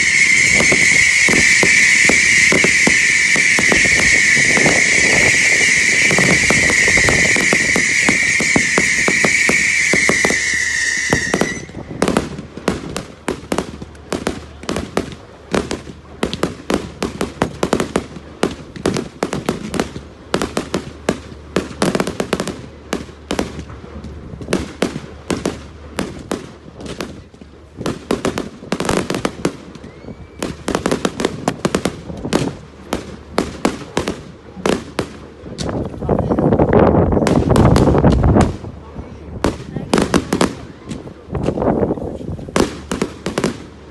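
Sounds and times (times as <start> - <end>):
whistling firework: 0.0 - 23.7, 24.4 - 35.2, 39.4 - 41.8, 42.5 - 43.9
rushing firework burst: 0.0 - 27.2
firework cracks and bangs: 0.0 - 36.0, 36.7 - 43.9.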